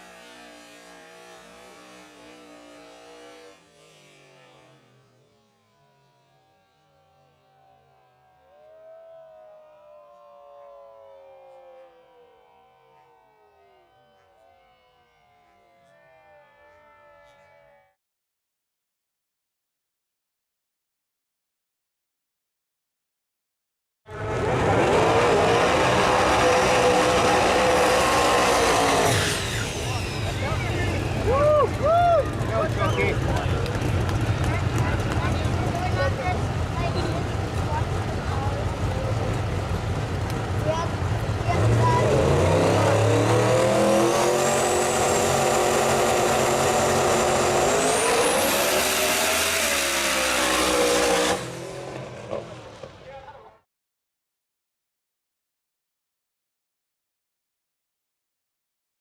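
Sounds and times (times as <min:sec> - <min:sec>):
drag racing car engine revving: 0:00.0 - 0:05.1, 0:24.1 - 0:31.5, 0:32.3 - 0:53.0.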